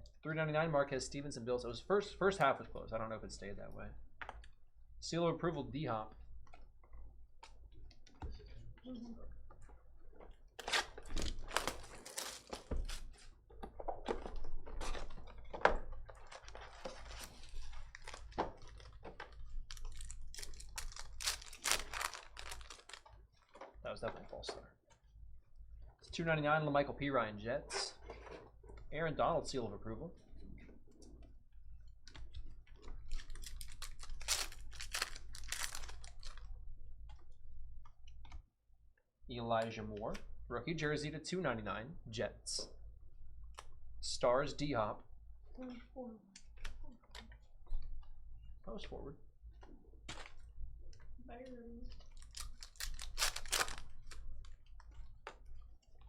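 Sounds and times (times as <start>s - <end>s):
trading cards clicking and rustling: 10.6s - 23.6s, 32.2s - 36.4s, 52.0s - 55.4s.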